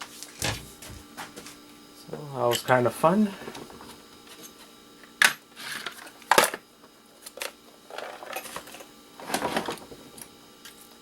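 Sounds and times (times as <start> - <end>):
scraping and rattling of scrap: 3.3 - 4.6, 7.9 - 10.2.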